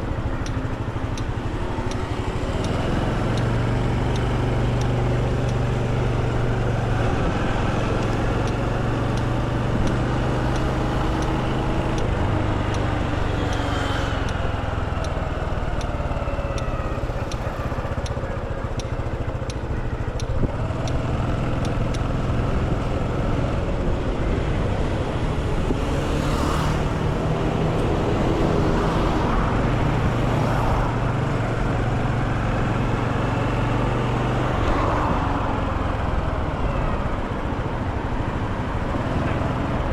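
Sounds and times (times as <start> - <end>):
faint regular ticking: 0.0 - 22.1
motorcycle engine running: 0.0 - 39.9
vehicles passing: 0.0 - 39.9.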